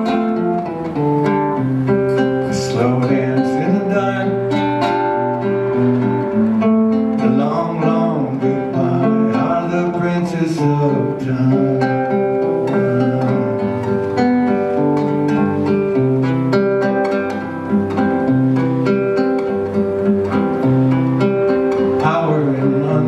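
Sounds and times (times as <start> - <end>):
acoustic guitar playing: 0.0 - 23.0.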